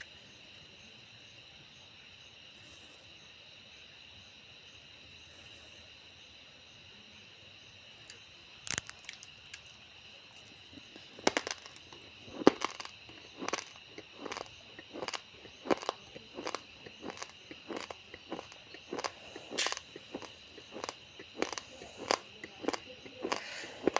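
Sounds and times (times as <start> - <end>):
insect chirring: 0.0 - 23.9
sharp crack: 8.6 - 9.4
rice grains crunching: 8.7 - 9.3, 10.4 - 23.9.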